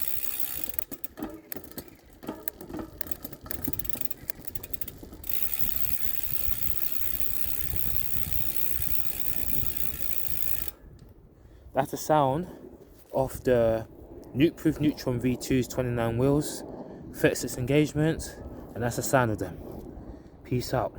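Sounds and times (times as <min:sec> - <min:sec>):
bicycle freehub ticking: 0:00.0 - 0:10.8.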